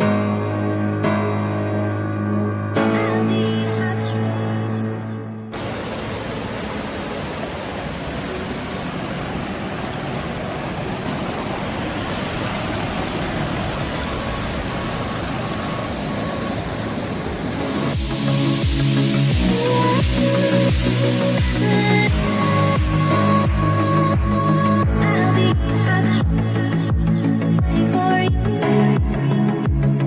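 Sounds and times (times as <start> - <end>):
background music: 0.0 - 5.6, 17.6 - 30.0
waterfall rushing: 5.6 - 18.6.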